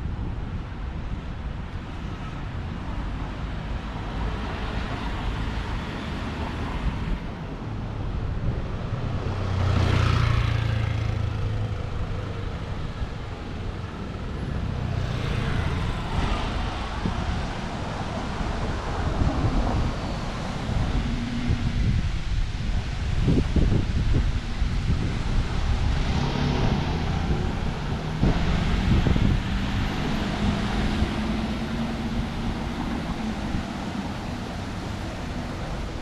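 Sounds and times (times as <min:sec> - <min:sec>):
street traffic rumble: 0:00.0 - 0:36.0
vehicle passing close by: 0:08.7 - 0:13.0, 0:14.0 - 0:36.0.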